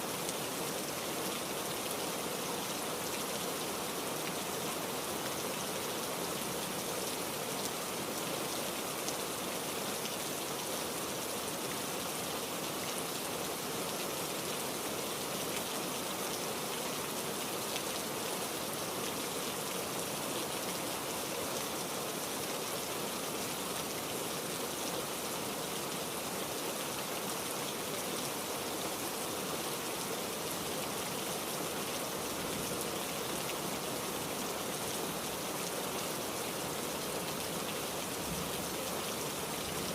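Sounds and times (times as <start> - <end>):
heavy rain falling: 0.1 - 39.9.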